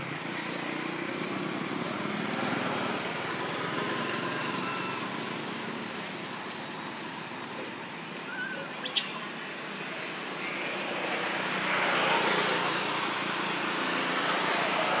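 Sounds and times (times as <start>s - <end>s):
bird chirp falling in pitch: 8.3s - 9.2s.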